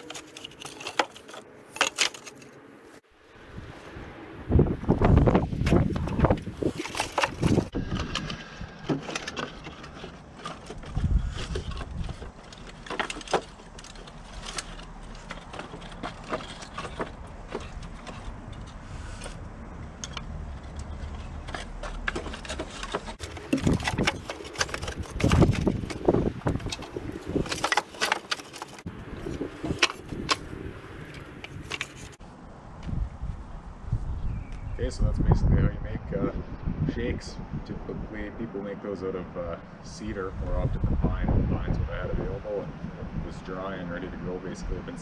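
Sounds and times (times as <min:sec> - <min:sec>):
wood knocking and clattering: 0:00.0 - 0:03.0, 0:05.6 - 0:07.8, 0:21.5 - 0:32.2.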